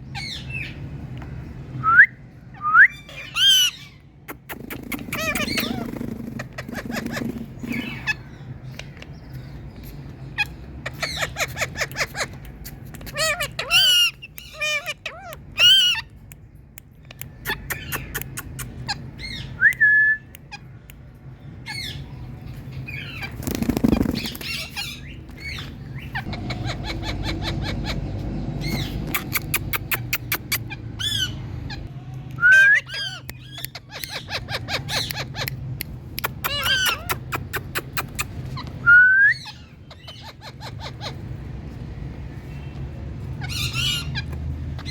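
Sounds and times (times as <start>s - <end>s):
parrots squawking: 2.9s - 8.8s, 10.0s - 16.2s, 17.2s - 19.6s, 24.1s - 44.9s.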